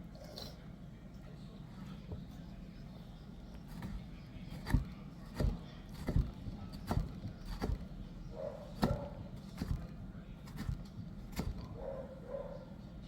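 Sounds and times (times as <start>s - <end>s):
knife chopping on cutting board: 3.7s - 7.9s, 8.7s - 11.8s.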